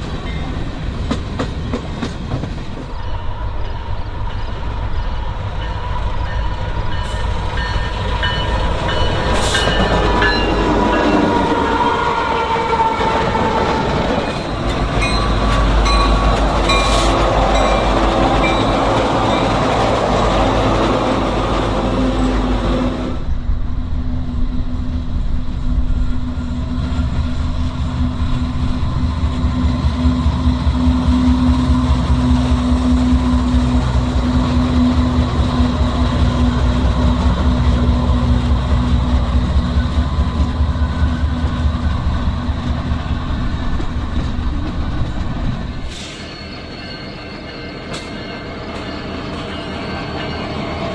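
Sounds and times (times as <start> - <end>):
diesel locomotive engines: 0.0 - 50.9
freight cars rolling: 7.4 - 23.2.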